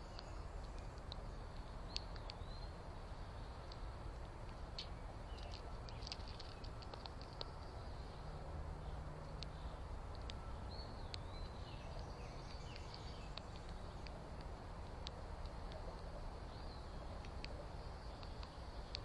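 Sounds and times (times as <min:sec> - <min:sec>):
small sharp ticks: 0:00.0 - 0:19.0
steady low rumble: 0:00.0 - 0:19.0
faint bird chirps: 0:04.8 - 0:14.2, 0:15.6 - 0:19.0.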